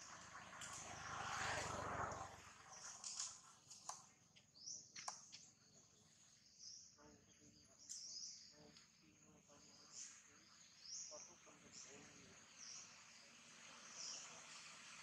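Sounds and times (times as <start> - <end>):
quiet outdoor ambience: 0.0 - 15.0
faint high bird chirps: 4.5 - 14.8.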